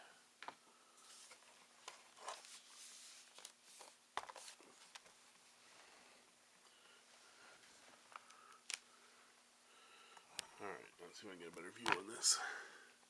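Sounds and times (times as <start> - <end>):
cables rustling: 1.0 - 9.1
cable clicks: 8.1 - 8.9.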